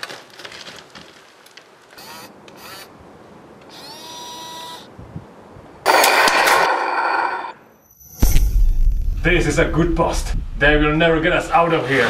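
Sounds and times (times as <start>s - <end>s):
small electric motors whining: 2.0s - 2.9s, 3.6s - 4.9s.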